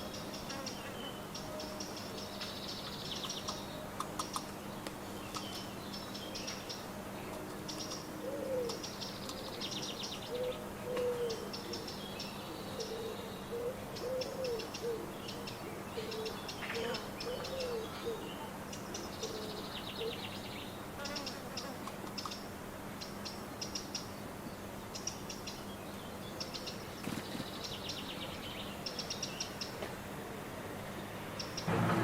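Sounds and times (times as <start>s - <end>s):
small songbirds chirping: 0.0s - 31.7s
low cooing: 8.2s - 8.8s, 10.3s - 11.9s, 12.6s - 18.5s.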